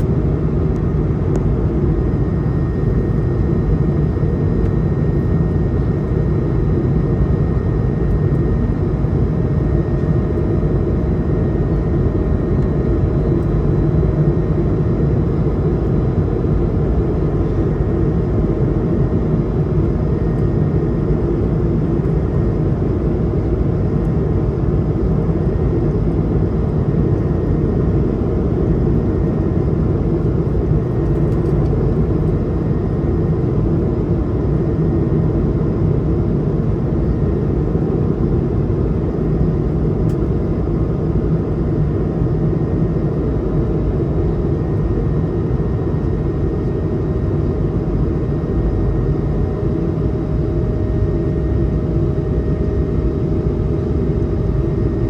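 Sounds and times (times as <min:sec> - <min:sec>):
aircraft cabin engine rumble: 0:00.0 - 0:55.0.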